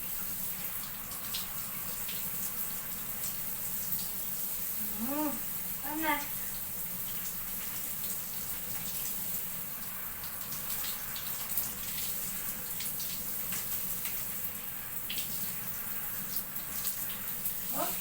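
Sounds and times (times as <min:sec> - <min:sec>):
shower water running: 0:00.0 - 0:18.0.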